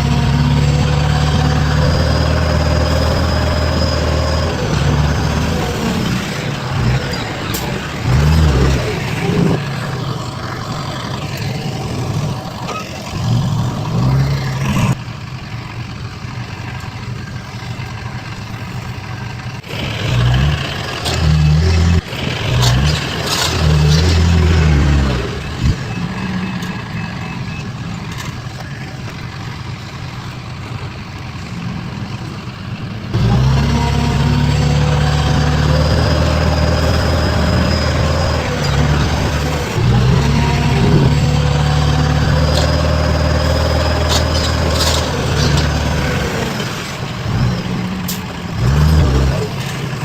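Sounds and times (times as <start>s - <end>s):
heavy diesel engines revving: 0.0s - 50.0s
faint reversing beeper: 1.4s - 11.0s, 24.3s - 29.0s.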